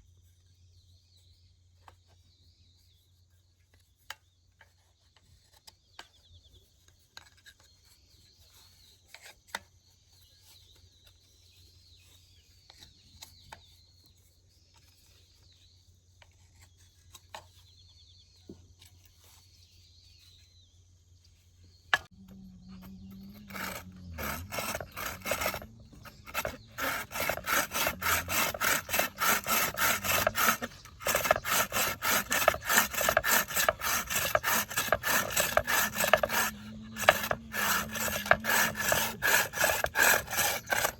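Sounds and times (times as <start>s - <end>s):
hand saw cutting wood: 22.0s - 40.9s.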